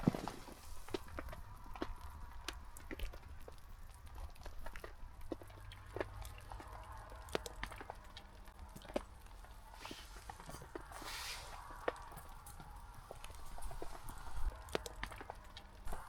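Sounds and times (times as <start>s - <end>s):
fire hissing: 0.0s - 4.0s, 8.3s - 16.0s
wood fire crackling: 0.0s - 16.0s.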